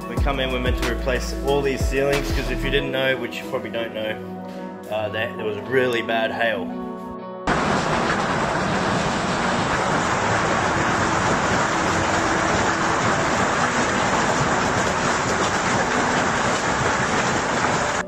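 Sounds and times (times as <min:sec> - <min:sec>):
hail pelting down: 0:07.5 - 0:18.0.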